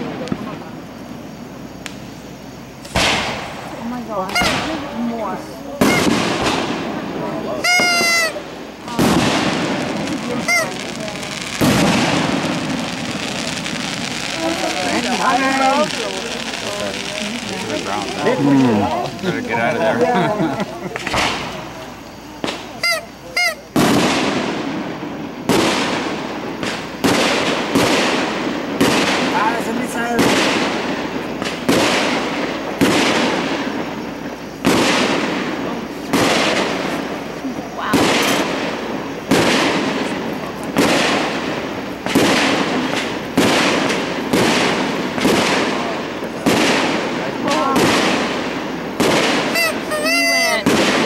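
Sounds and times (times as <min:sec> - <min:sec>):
firework shells booming: 0:00.0 - 0:51.0.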